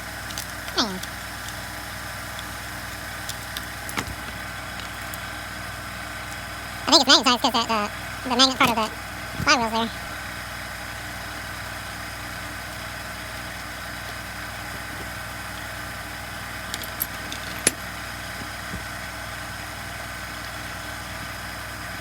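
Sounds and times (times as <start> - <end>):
machine hum: 0.0 - 22.0
light clicks of small parts: 0.1 - 5.3.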